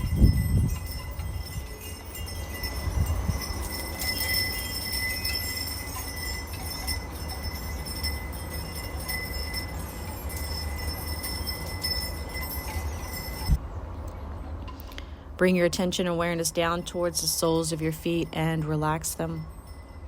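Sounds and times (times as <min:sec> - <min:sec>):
wind chimes ringing: 0:00.0 - 0:13.6, 0:15.7 - 0:20.0
wind rumble on microphone: 0:00.0 - 0:13.6.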